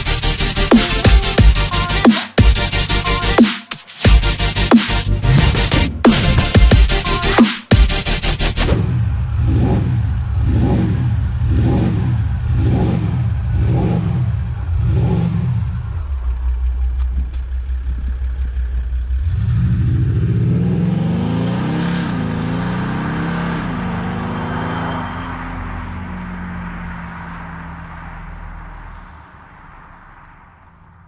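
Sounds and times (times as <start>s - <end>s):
diesel engine revving: 4.2s - 31.0s
car accelerating away: 8.7s - 31.0s
engine idling: 15.7s - 19.6s.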